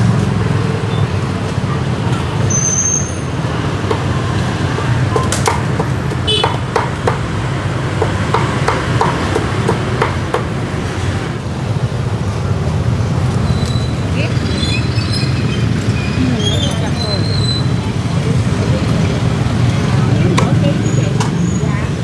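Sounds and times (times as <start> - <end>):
street traffic: 0.0 - 22.0
cleaver chopping meat: 3.8 - 10.6.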